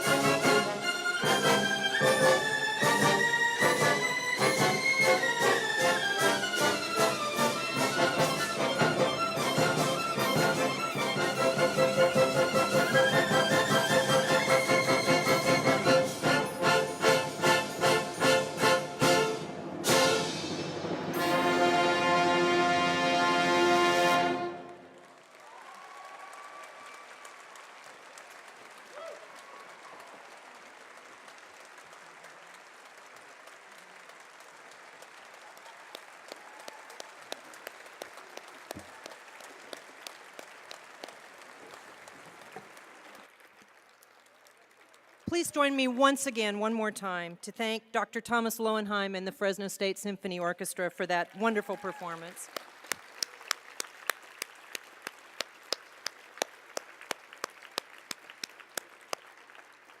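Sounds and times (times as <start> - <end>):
audience applauding: 24.2 - 45.4, 51.2 - 60.0
crisp regular claps: 25.0 - 45.4, 51.2 - 60.0.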